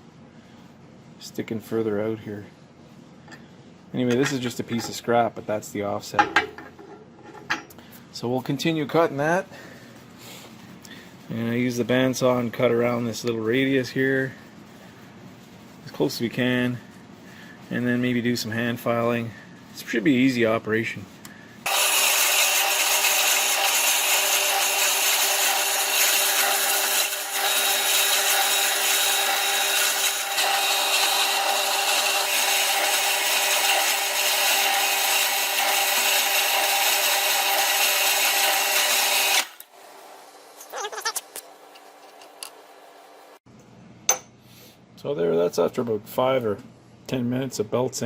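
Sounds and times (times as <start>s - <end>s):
power tool cutting metal: 21.7s - 39.6s.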